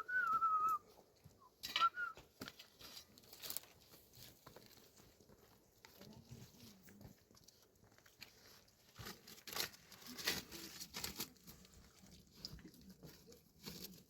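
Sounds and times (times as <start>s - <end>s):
short whistles: 0.0s - 2.2s
rustling: 1.8s - 14.0s.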